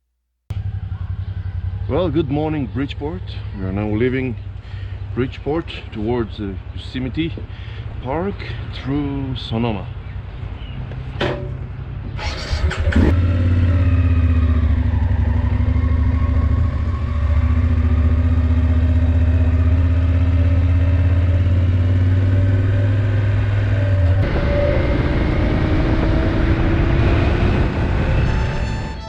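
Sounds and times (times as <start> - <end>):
motorcycle engine running: 0.5 - 5.1, 12.6 - 28.8.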